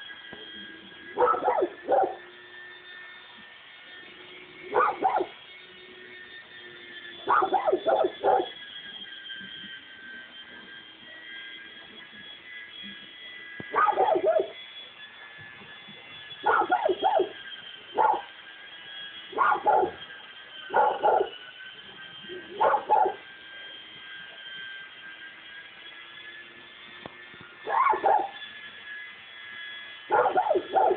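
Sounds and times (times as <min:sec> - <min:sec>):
dog barking: 0:01.2 - 0:02.2, 0:04.7 - 0:05.3, 0:07.3 - 0:08.5, 0:13.8 - 0:14.6, 0:16.5 - 0:17.3, 0:18.0 - 0:18.3, 0:19.4 - 0:20.0, 0:20.7 - 0:21.3, 0:22.6 - 0:23.2, 0:27.7 - 0:28.3, 0:30.1 - 0:30.9.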